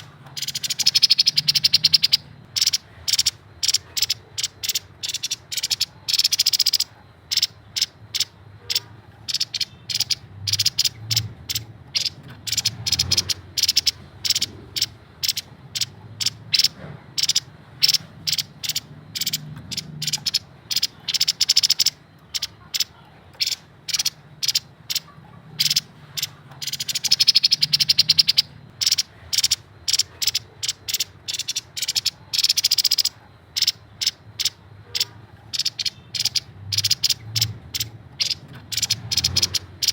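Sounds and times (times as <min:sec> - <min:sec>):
bird chattering and rattling: 0:00.0 - 0:39.9.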